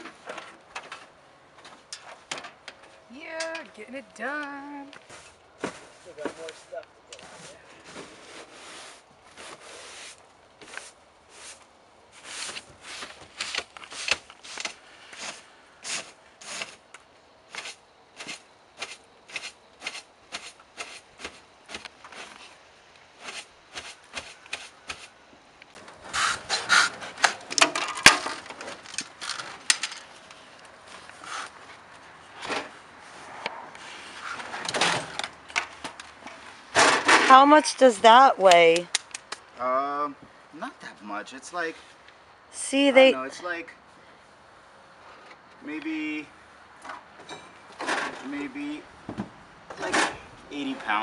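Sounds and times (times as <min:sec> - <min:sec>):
hand tool scraping: 0:05.1 - 0:16.9, 0:17.5 - 0:22.6, 0:23.2 - 0:25.2, 0:25.8 - 0:27.7.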